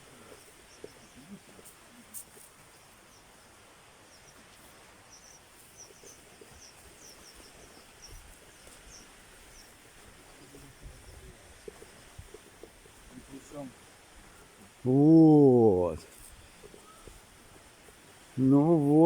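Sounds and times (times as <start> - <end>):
steady hiss: 0.0 - 19.0
small bird chirping: 0.4 - 12.1.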